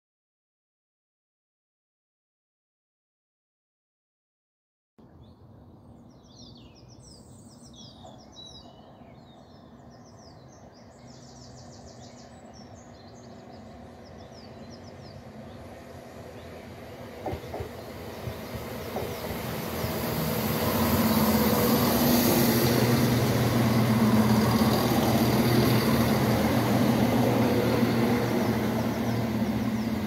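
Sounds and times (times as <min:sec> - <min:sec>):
birds singing: 0:05.0 - 0:30.0
diesel train approaching: 0:07.4 - 0:30.0.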